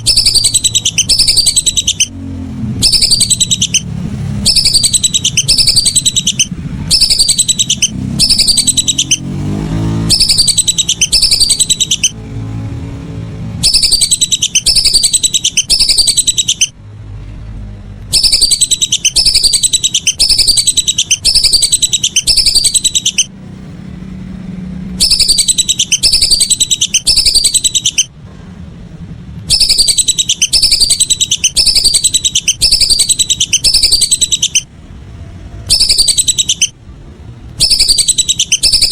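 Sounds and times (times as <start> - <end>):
whistling duck calls: 0.0 - 2.2, 2.8 - 9.3, 10.0 - 12.2, 13.6 - 16.8, 18.1 - 23.3, 25.0 - 28.2, 29.5 - 34.7, 35.7 - 36.8, 37.6 - 38.9.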